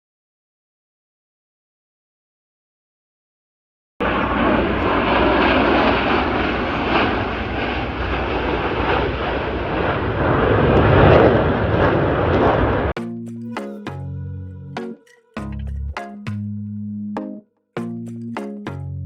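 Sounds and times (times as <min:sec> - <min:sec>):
aircraft engine noise: 0:04.0 - 0:16.0.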